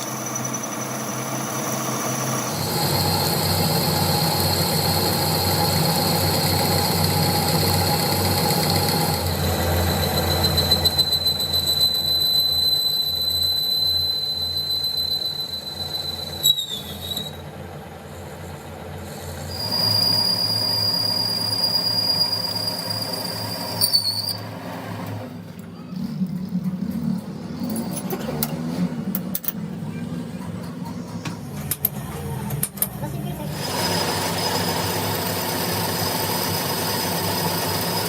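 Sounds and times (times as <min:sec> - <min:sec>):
high-pitched cutting squeal: 0:00.0 - 0:17.5, 0:19.1 - 0:24.8.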